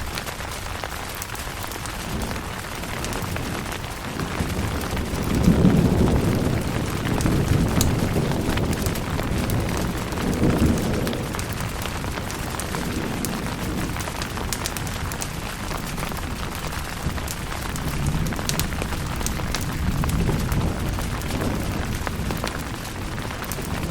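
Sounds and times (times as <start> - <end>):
rain falling on a tent: 0.0 - 23.9
low rolling thunder: 1.8 - 23.9.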